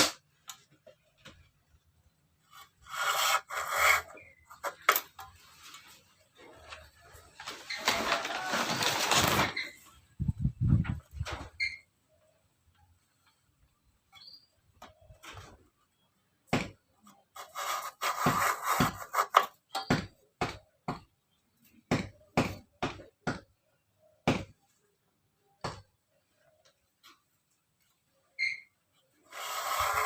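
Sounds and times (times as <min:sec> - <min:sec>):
scraping rasp: 0:02.4 - 0:05.0, 0:17.3 - 0:19.6, 0:29.2 - 0:30.0.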